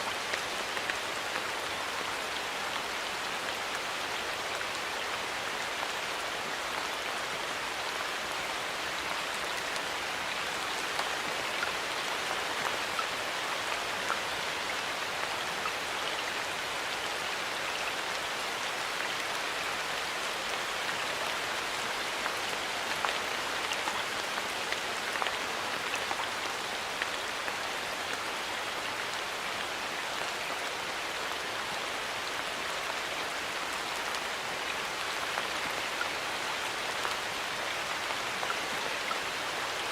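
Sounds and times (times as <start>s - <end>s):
light rain pattering: 0.0s - 39.9s.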